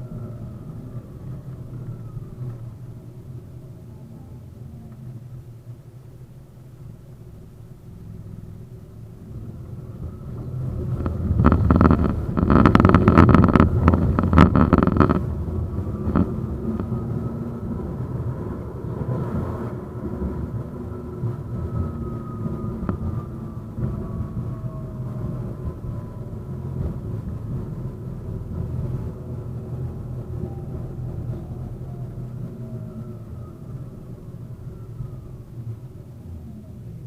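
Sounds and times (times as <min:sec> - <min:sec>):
tram rumbling on track: 0:00.0 - 0:37.0
wheels clattering over track: 0:09.9 - 0:17.0.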